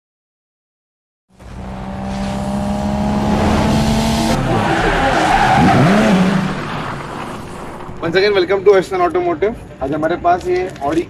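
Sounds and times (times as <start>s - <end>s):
car engine: 1.4s - 9.0s
tyres squealing: 1.8s - 8.9s.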